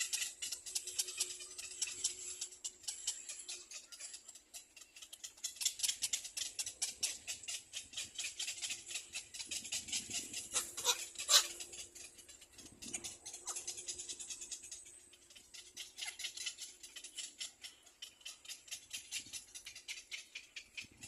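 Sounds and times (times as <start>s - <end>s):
nestling birds chirping: 0.0s - 21.0s
sharp bird calls: 0.0s - 21.0s.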